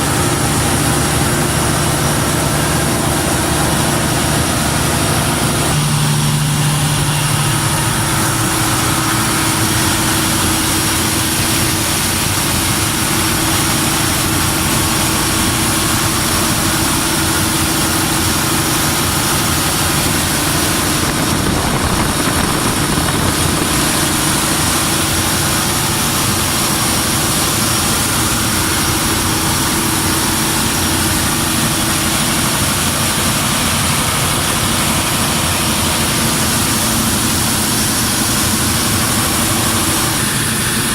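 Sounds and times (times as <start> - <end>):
diesel generator droning: 0.0 - 40.9.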